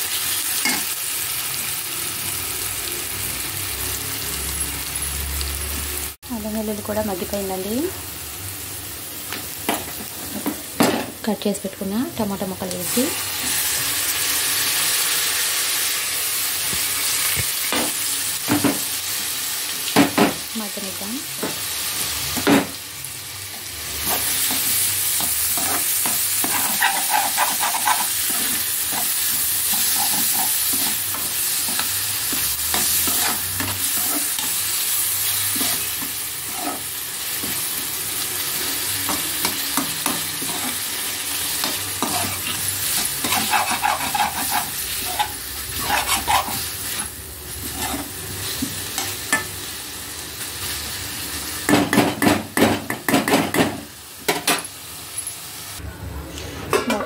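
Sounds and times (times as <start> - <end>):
tomatoes sizzling in hot oil: 0.0 - 55.8
metal spatula scraping a pan: 24.0 - 34.6, 35.4 - 37.6, 41.6 - 48.2.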